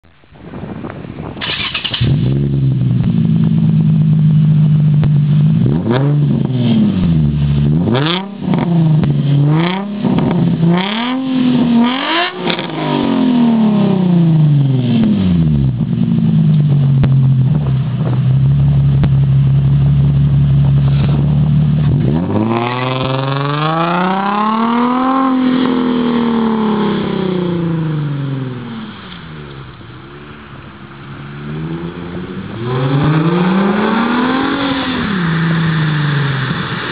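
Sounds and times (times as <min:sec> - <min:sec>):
car engine starting: 0:00.8 - 0:36.9
car engine idling: 0:01.4 - 0:07.8, 0:14.0 - 0:36.9
car engine revving: 0:01.4 - 0:36.9.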